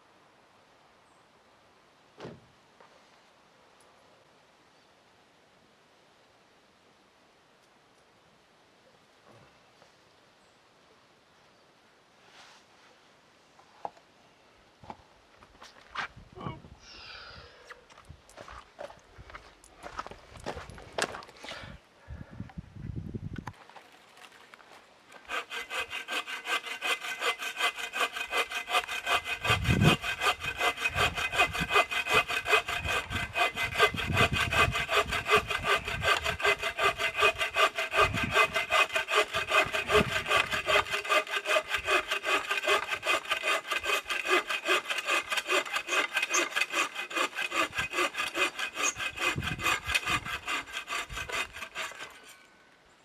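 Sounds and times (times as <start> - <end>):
hand saw cutting wood: 25.1 - 52.5.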